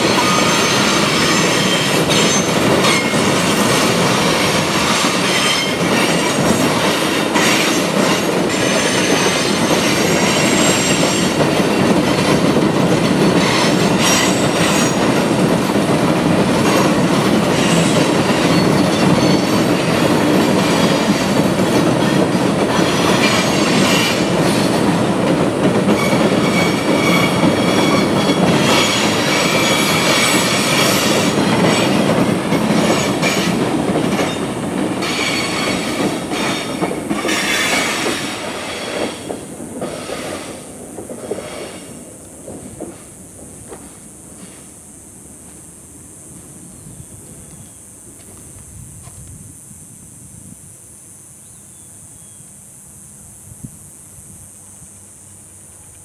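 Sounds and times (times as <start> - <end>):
train wheels rumbling on rail: 0.0 - 56.0
wheel squeals: 17.5 - 19.9, 25.9 - 32.0.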